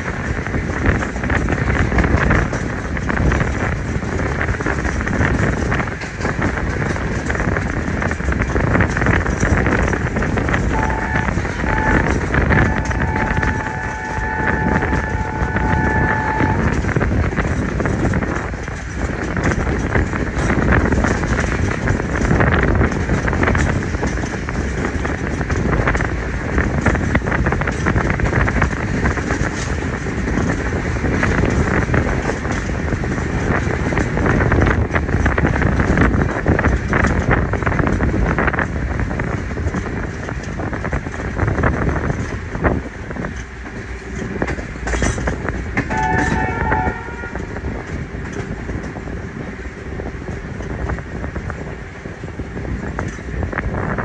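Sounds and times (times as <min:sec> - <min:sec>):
train coaches rumbling and rattling: 0:00.0 - 0:54.0
wheels clattering over rails: 0:00.0 - 0:54.0
train horn toot: 0:10.5 - 0:17.2, 0:45.8 - 0:47.9.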